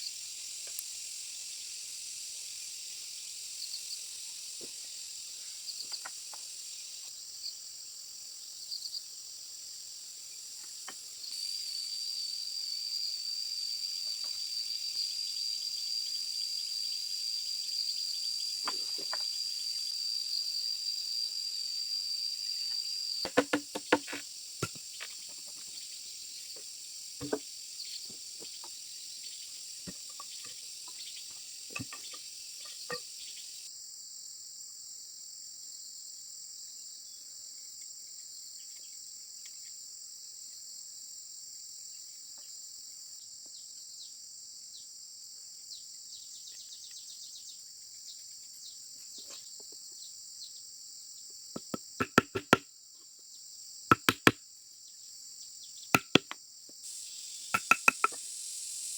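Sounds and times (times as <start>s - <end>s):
insects chirring: 0.0s - 34.8s, 36.4s - 58.9s
sharp knocks: 23.3s - 24.8s, 27.2s - 27.4s, 51.6s - 52.6s, 53.9s - 54.4s, 56.0s - 56.4s, 57.6s - 58.2s
scattered taps: 51.6s - 52.6s, 53.9s - 54.4s, 56.0s - 56.4s, 57.6s - 58.2s.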